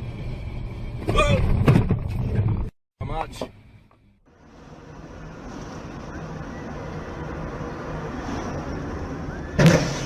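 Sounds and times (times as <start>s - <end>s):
car road and engine noise: 0.0s - 10.0s
loud bang: 9.6s - 10.0s.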